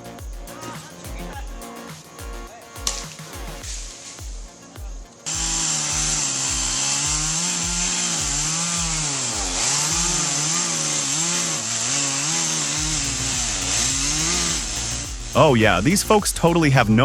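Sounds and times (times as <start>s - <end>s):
low thudding music beat: 0.0s - 17.0s
chainsaw cutting wood: 5.3s - 15.3s.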